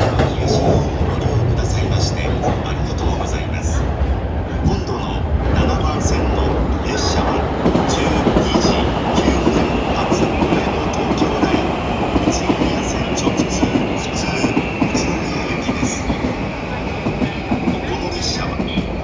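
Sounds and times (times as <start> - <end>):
train wheels clacking over rail joints: 0.0 - 3.0
faint train whine: 4.6 - 19.0.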